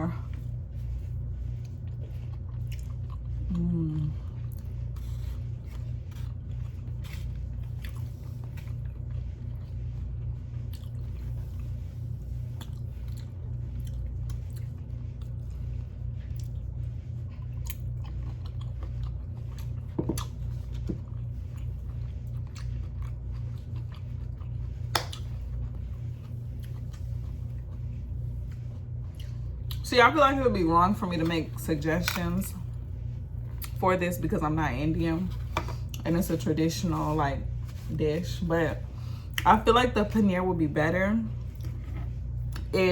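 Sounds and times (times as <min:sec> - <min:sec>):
person chewing crunchy food: 0:00.2 - 0:29.8, 0:41.4 - 0:42.8.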